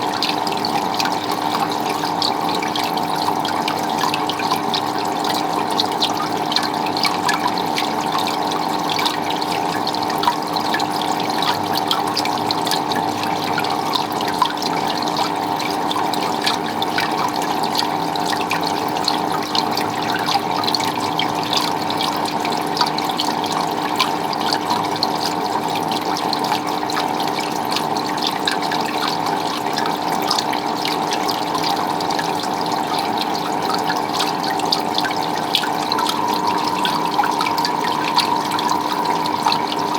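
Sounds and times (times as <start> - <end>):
water running and splashing: 0.0 - 39.9
water trickling and dripping: 0.0 - 39.9
steady hum: 35.0 - 39.9.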